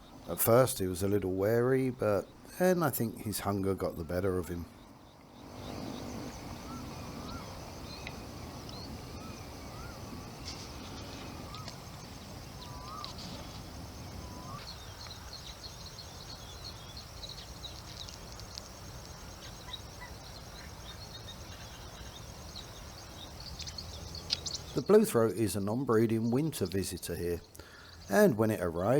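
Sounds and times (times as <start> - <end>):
small high chirps: 4.6 - 24.9.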